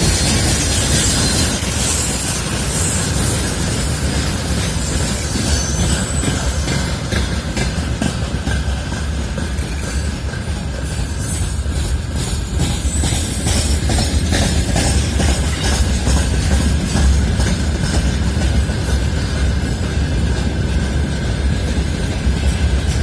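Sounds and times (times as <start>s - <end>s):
freight train rumbling: 0.0s - 23.0s
wheels clicking over rail joints: 0.0s - 23.0s
faint wheel squeal: 1.0s - 7.0s, 9.4s - 21.0s.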